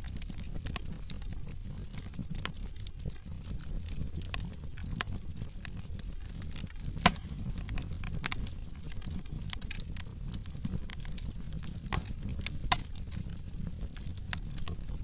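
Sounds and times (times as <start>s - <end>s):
flames rumbling: 0.0s - 15.0s
wood fire crackling: 0.0s - 15.0s.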